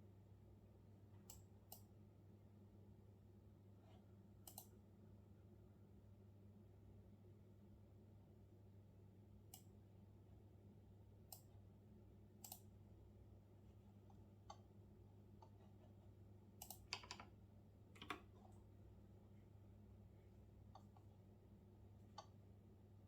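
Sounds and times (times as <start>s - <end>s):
faint low hum: 0.0s - 23.0s
computer keyboard keystrokes: 4.5s - 4.7s, 12.4s - 12.7s, 16.6s - 17.3s, 18.0s - 18.3s.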